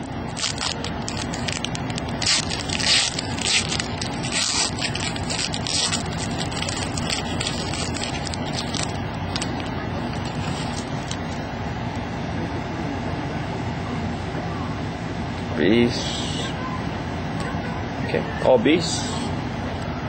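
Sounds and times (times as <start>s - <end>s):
foil wrapper crinkling and tearing: 0.0s - 11.4s
cards being handled: 0.3s - 11.4s.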